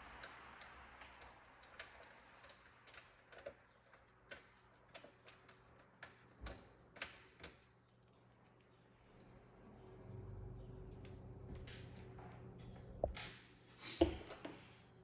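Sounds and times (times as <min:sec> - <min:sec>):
small clicks and taps: 0:00.0 - 0:09.4.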